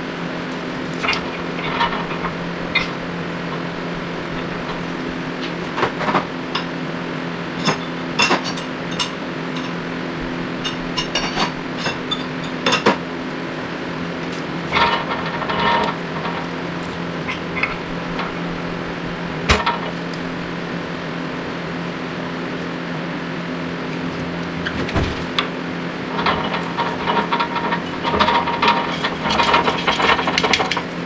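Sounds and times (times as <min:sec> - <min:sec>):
steady low hum: 0:00.0 - 0:31.0
metal tools clinking on workbench: 0:01.0 - 0:03.0.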